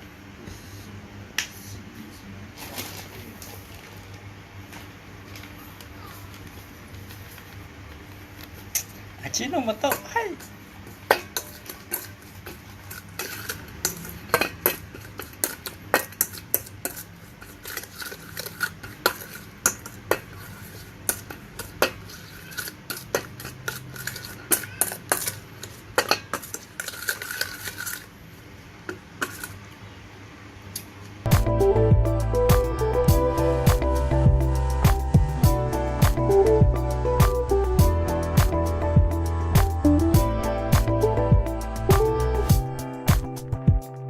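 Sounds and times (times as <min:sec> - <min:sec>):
utensil scraping a bowl: 0:11.3 - 0:28.1
music: 0:31.3 - 0:44.0.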